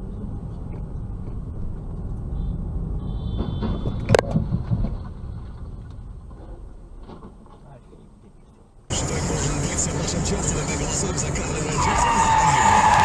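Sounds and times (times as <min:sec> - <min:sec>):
car road and engine rumble: 0:00.0 - 0:13.0
high tyre squeal: 0:08.9 - 0:13.0.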